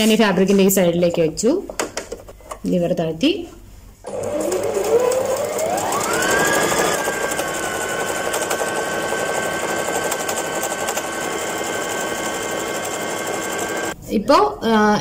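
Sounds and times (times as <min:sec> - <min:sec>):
sewing machine motor whine: 0:04.0 - 0:14.0.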